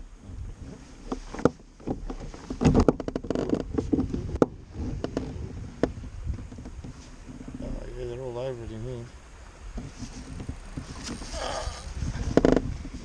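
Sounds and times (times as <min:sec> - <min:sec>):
gear knocking on kayak: 0:01.0 - 0:07.8, 0:09.7 - 0:13.0.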